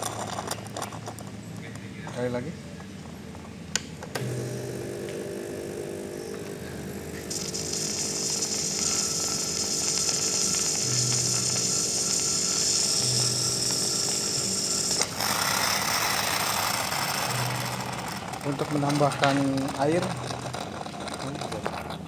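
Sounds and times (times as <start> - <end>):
espresso machine pump running: 4.1 - 22.0
water hissing: 6.4 - 18.0.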